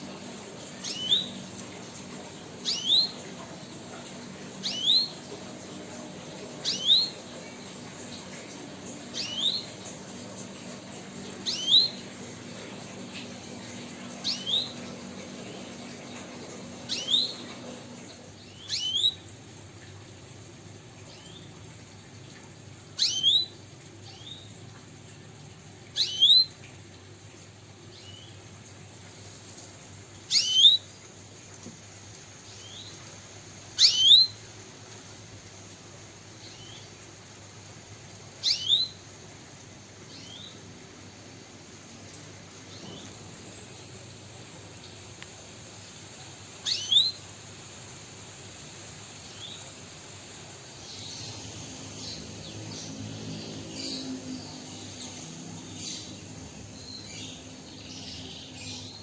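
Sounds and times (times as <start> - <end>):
songbird sharp chirps: 46.7 - 47.2.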